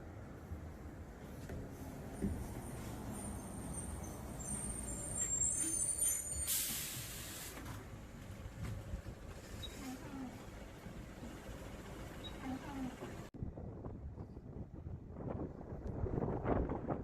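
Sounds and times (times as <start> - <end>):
bus engine rumble: 0.0 - 16.9
bus brake squeal: 2.7 - 7.6
air brake hiss: 6.1 - 7.6.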